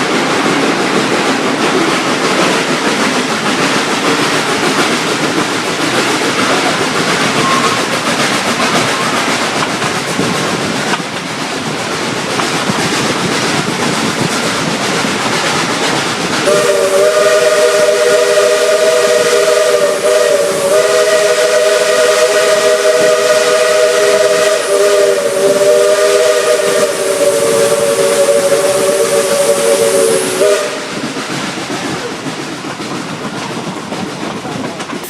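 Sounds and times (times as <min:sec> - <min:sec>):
steam hissing: 0:00.0 - 0:35.0
steam locomotive chime whistle: 0:16.4 - 0:31.0.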